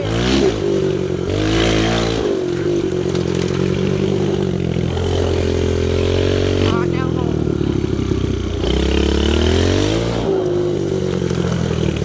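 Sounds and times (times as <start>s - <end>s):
pit bike engine revving: 0.0s - 12.0s.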